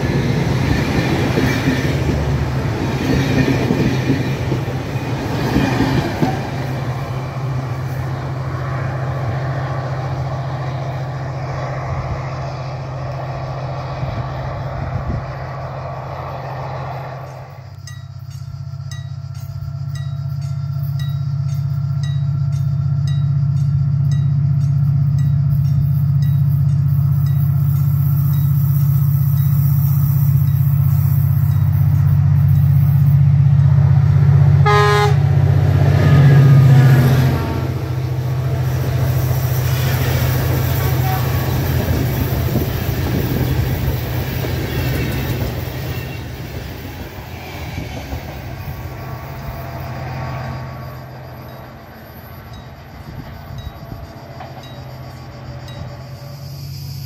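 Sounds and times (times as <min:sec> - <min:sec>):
train wheels rattling: 0:00.0 - 0:34.5, 0:35.4 - 0:56.6
diesel train engine hum: 0:00.0 - 0:57.0
train horn: 0:34.6 - 0:37.6, 0:40.0 - 0:42.1.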